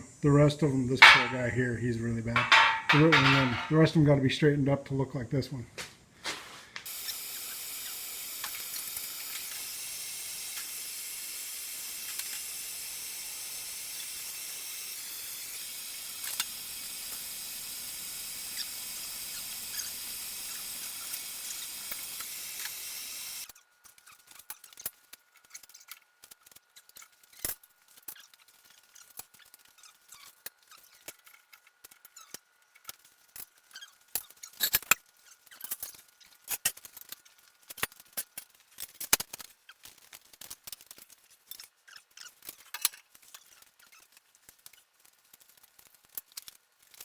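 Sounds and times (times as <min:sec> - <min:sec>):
steady hiss: 0:00.0 - 0:04.5, 0:06.1 - 0:23.5
handling noises: 0:00.9 - 0:03.9.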